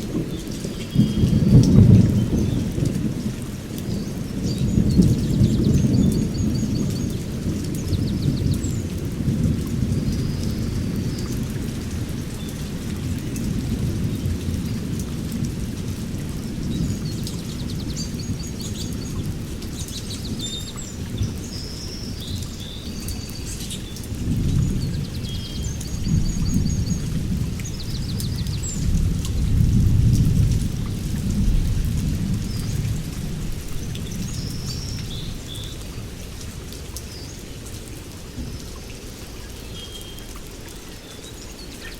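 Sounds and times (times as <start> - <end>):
thunder rumbling: 0.0 - 19.5, 24.1 - 36.1
rain falling: 0.0 - 41.9.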